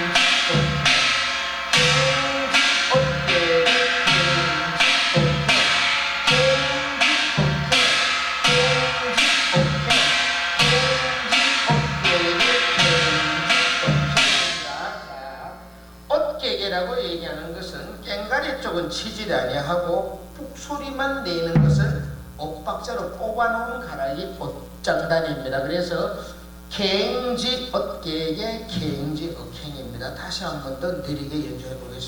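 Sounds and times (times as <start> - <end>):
small gong ringing: 0.0 - 15.7
barrel drum thumps: 21.6 - 22.4, 28.7 - 29.1.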